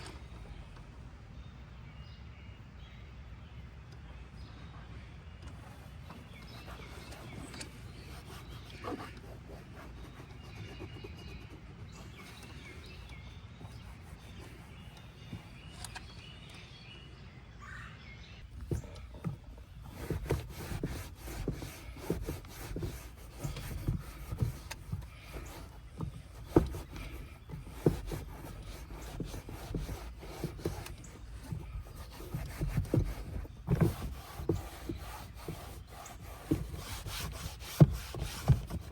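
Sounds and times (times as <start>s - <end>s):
hand scrubbing car interior: 5.6s - 15.7s, 18.4s - 38.9s
handling knocks: 18.4s - 38.9s.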